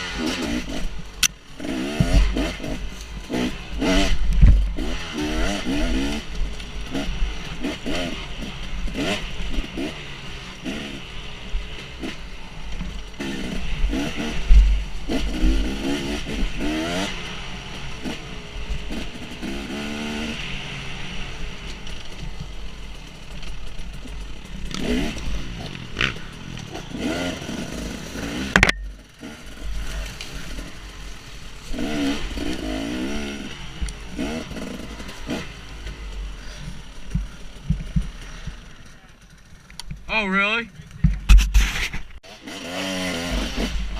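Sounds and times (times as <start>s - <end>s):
dirt bike engine revving: 0.0s - 43.9s
sharp knock: 41.1s - 42.1s.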